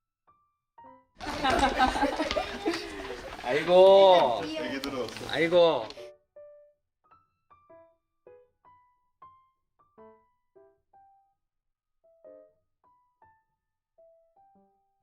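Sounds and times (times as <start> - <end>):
soft piano music: 0.2 - 1.2, 3.8 - 11.4, 12.0 - 15.0.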